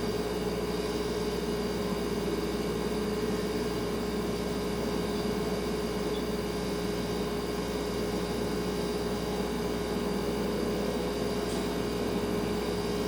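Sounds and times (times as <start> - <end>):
refrigerator humming: 0.0 - 13.0.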